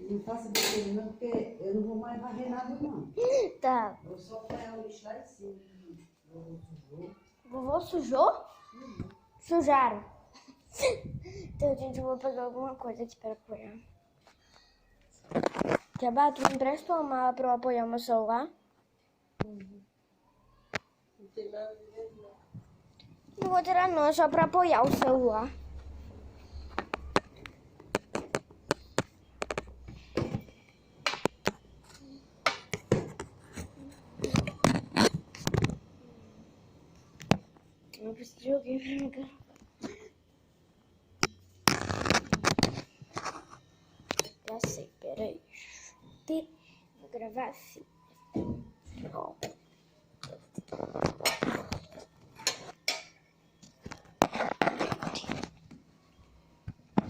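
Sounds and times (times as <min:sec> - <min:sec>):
objects knocking and clattering: 0:26.6 - 0:31.6, 0:32.4 - 0:35.8, 0:50.2 - 0:55.6.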